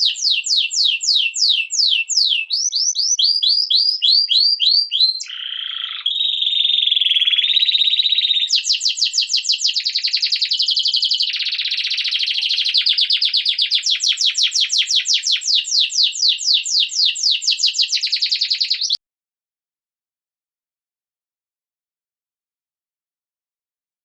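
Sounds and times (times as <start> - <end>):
songbird trilling: 0.0 - 19.0.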